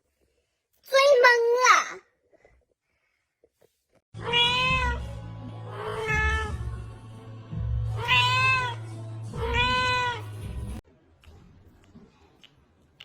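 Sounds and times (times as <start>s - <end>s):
cat meowing: 4.2s - 5.1s, 5.7s - 6.6s, 7.9s - 8.8s, 9.4s - 10.3s
background music: 4.2s - 10.8s.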